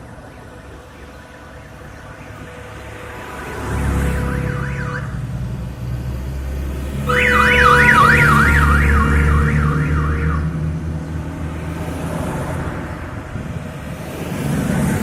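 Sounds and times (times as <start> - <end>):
passing vehicle engines rumble: 0.0 - 15.0
electronic siren warbling: 4.0 - 5.2, 7.1 - 10.7.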